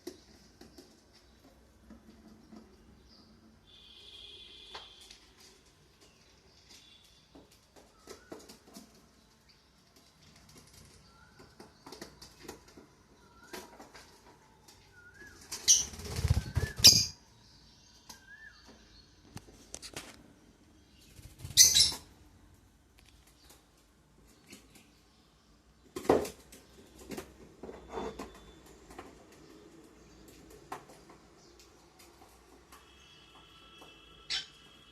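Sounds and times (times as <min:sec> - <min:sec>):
soft bird chirps: 0:02.2 - 0:22.1
birds flapping wings: 0:15.3 - 0:17.1.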